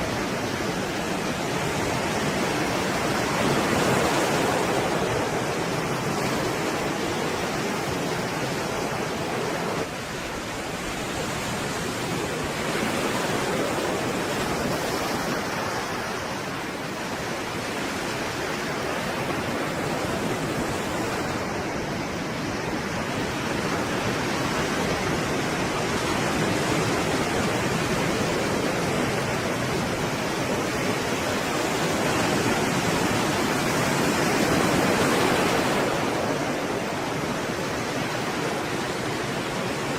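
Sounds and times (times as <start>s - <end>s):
stormy sea waves breaking: 0.0s - 39.9s.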